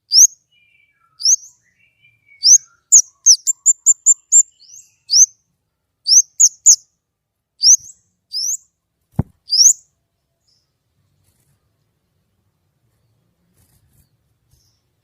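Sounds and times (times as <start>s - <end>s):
songbird whistling: 0.1s - 5.3s, 6.1s - 6.8s, 7.6s - 8.6s, 9.5s - 9.8s
dull thump: 9.2s - 9.4s.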